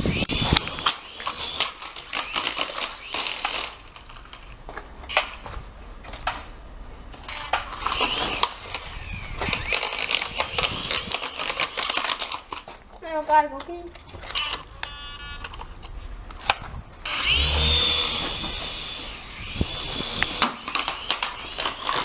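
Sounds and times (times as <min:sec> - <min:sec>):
toy helicopter motor whine: 0:00.0 - 0:04.4, 0:07.2 - 0:12.6, 0:14.2 - 0:15.7, 0:17.0 - 0:22.0
plastic clicks and rattles: 0:00.5 - 0:05.4, 0:07.2 - 0:13.0, 0:20.0 - 0:22.0.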